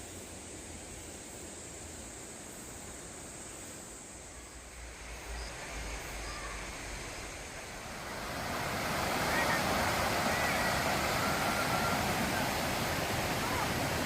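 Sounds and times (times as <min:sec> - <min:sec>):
mountain stream rushing: 0:00.0 - 0:14.0
faint bird calls: 0:05.2 - 0:07.0.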